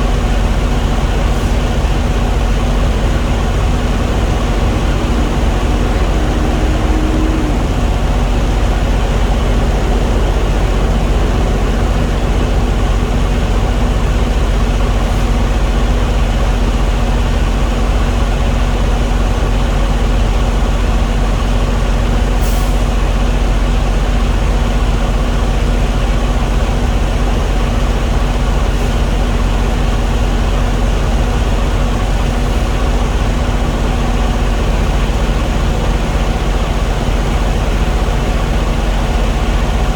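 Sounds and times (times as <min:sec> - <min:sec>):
diesel engine running: 0:00.0 - 0:39.9
faint high tone: 0:03.2 - 0:13.9.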